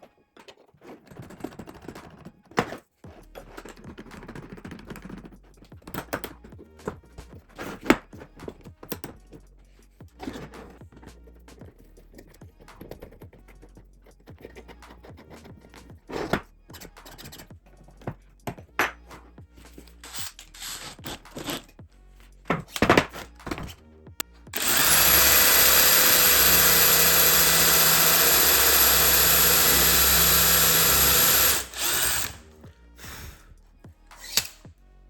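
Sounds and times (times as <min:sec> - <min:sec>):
electric power tool running: 0:24.6 - 0:32.6.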